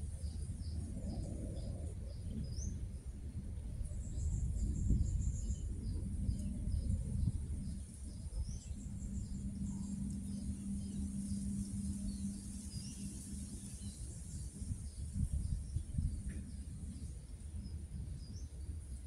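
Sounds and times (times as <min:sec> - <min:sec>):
low rumble: 0:00.0 - 0:19.0
steady low hum: 0:00.0 - 0:19.0
small birds chirping: 0:03.9 - 0:19.0
high insect drone: 0:04.0 - 0:15.2.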